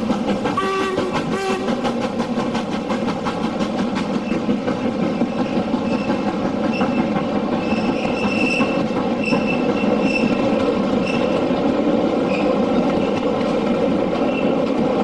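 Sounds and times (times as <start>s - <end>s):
train wheels rumbling on rail: 0.0s - 15.0s
wheels squealing on rail: 3.9s - 11.6s, 12.2s - 13.4s, 14.1s - 14.8s.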